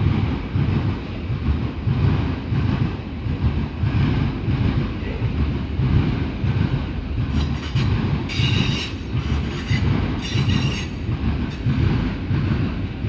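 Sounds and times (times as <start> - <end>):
freight train rumbling past: 0.0 - 13.0
rhythmic wheel clatter: 0.0 - 13.0
high metallic wheel squeals: 6.6 - 11.0.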